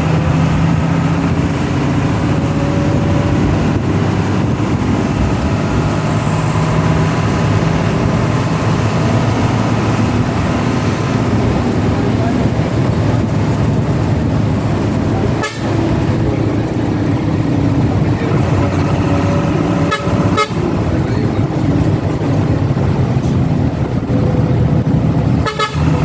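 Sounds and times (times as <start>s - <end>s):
bus engine drone: 0.0s - 26.0s
road noise: 0.0s - 26.0s.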